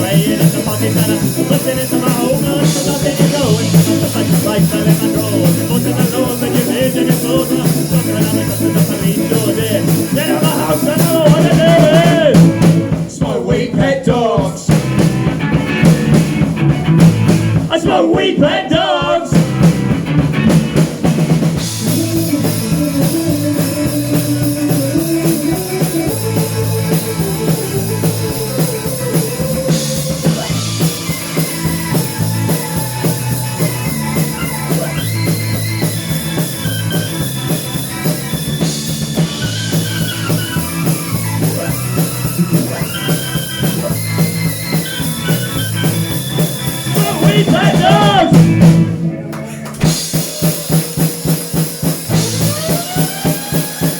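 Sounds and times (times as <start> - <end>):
person singing: 0.0 - 14.8, 17.6 - 19.4, 21.8 - 35.9, 46.8 - 48.6, 52.1 - 53.9
rock music with drums and bass: 0.0 - 53.9.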